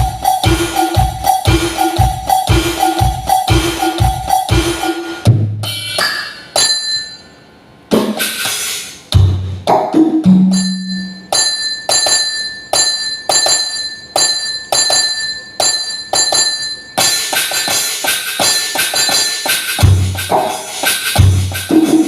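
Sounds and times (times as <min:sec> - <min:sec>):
deep drum hits: 0:00.0 - 0:05.8
electronic percussion pad hits: 0:00.0 - 0:06.9, 0:12.8 - 0:22.0.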